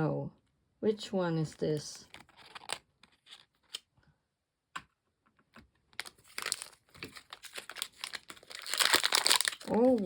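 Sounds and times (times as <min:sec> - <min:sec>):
plastic packaging crinkling: 0:05.9 - 0:10.0.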